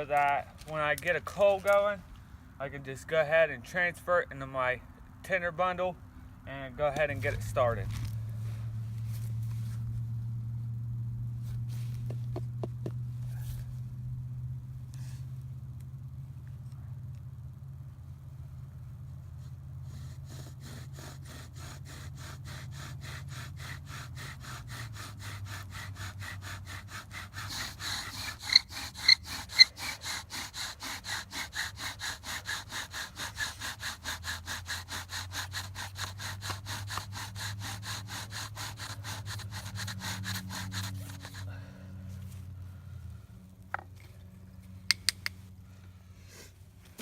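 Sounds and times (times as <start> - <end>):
bow drill spindle grinding: 20.2 - 41.5
bow drill squeaks: 27.4 - 30.2.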